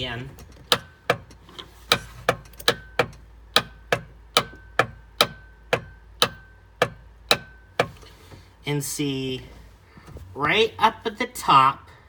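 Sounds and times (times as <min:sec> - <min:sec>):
electrical box clicking: 0:00.3 - 0:08.0.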